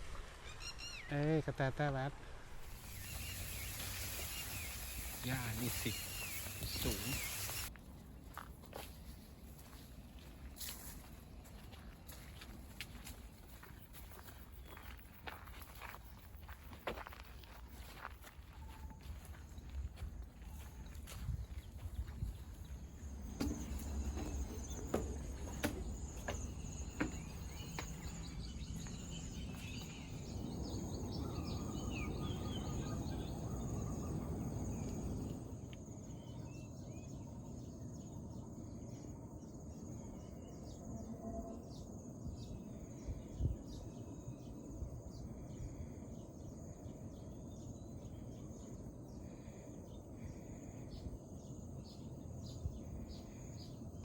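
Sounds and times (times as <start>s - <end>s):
bird calls: 0.4s - 1.2s, 2.7s - 7.7s, 20.4s - 35.3s
insects: 2.6s - 54.0s.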